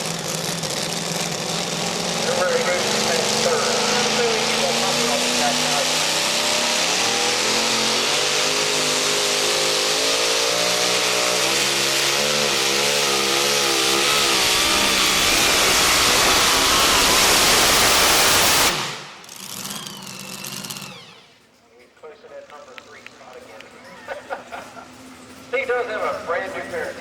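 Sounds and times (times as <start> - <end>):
pulling truck engine at full throttle: 0.0 - 21.4, 22.3 - 27.0.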